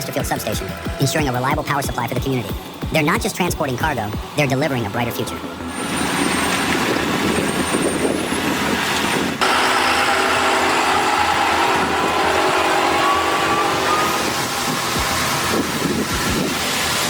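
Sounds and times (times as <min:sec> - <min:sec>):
heavy truck engine and road noise: 0:00.0 - 0:17.0.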